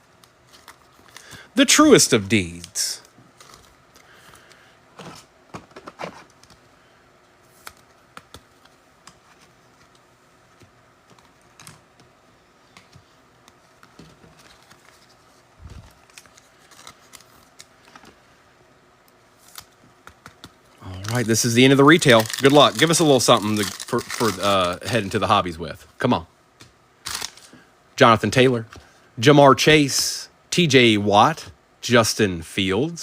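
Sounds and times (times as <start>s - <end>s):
trading cards being handled: 7.4s - 18.2s, 19.1s - 25.3s.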